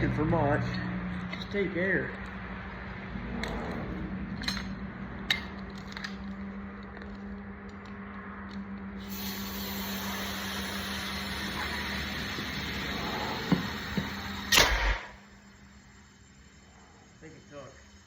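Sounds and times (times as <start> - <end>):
compressed air hissing into tire: 9.0 - 18.0.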